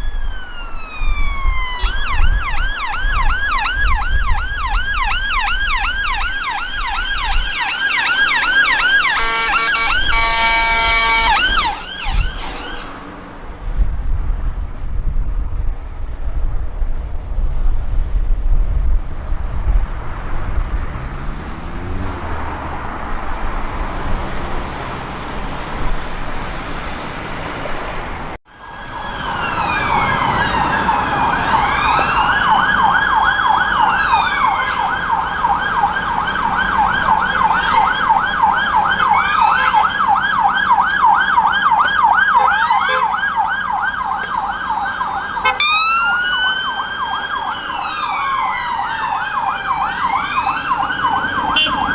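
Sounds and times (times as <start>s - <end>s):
siren wailing: 0.0s - 13.0s, 28.5s - 51.9s
siren yelping: 0.0s - 13.0s, 28.5s - 51.9s
traffic rumble: 0.0s - 51.9s
engine speeding up: 0.1s - 15.1s, 19.0s - 42.6s, 43.2s - 51.9s.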